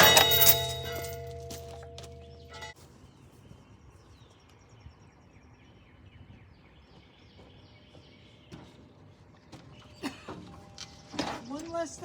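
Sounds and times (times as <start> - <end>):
birds chirping: 0.0 - 2.8, 3.7 - 12.0.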